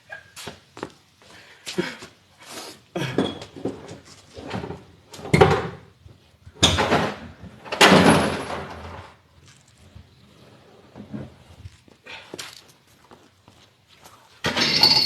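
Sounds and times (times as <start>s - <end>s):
clunks and scrapes: 3.1s - 5.9s.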